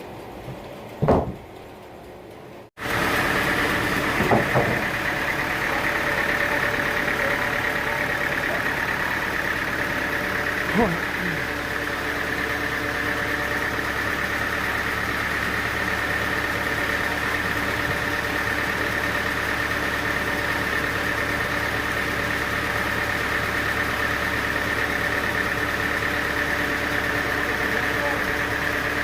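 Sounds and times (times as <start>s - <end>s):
sawmill machinery drone and whine: 0.0s - 29.0s.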